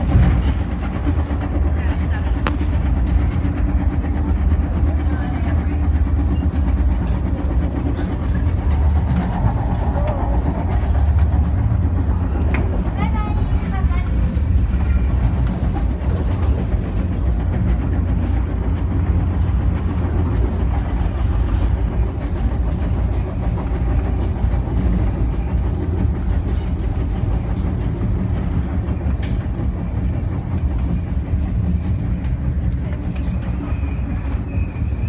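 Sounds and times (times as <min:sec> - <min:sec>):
rail joint clicks: 0:00.0 - 0:35.0
train wheels rumbling on rails: 0:00.0 - 0:35.0.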